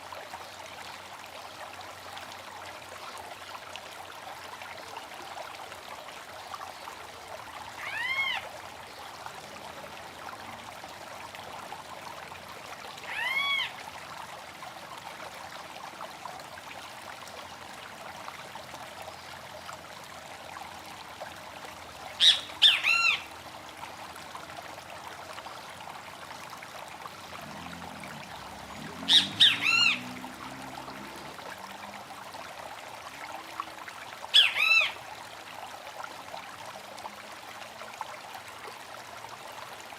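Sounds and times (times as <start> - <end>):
running stream: 0.0 - 39.9
bird calling: 22.2 - 23.2, 29.1 - 30.1.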